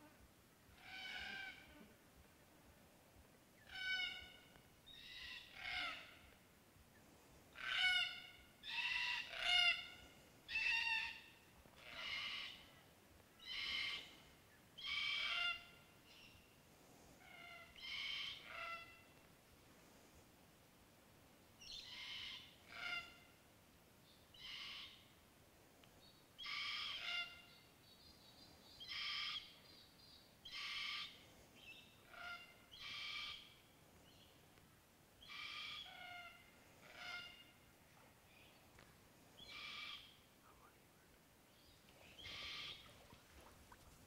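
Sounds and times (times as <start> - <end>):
faint background noise: 0.0 - 44.0
bird calling: 41.5 - 44.0.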